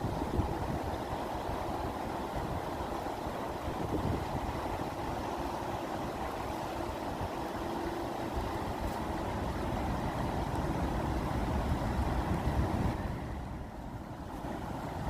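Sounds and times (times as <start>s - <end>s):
flowing water: 0.0s - 15.0s.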